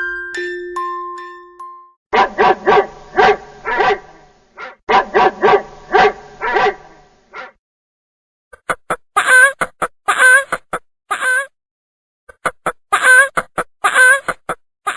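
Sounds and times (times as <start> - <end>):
glockenspiel note: 0.0 - 2.0
dog barking: 2.2 - 7.6.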